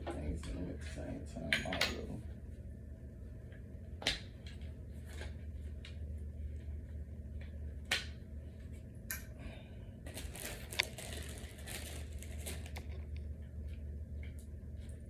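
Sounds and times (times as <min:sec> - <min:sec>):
steady low hum: 0:00.0 - 0:15.0
crinkly rustling: 0:10.0 - 0:13.3.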